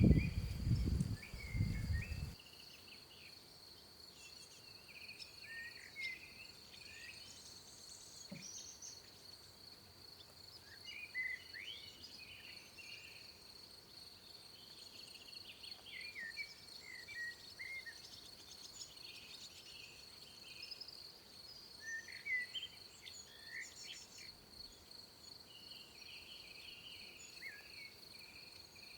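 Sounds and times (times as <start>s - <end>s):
birds chirping and whistling: 0.0s - 2.4s.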